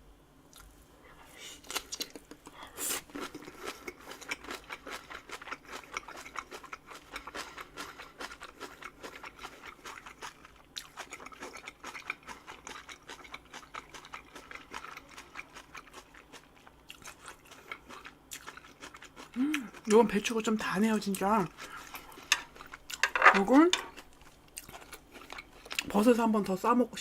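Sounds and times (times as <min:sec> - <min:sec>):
close-miked crunchy chewing: 0:00.5 - 0:26.6.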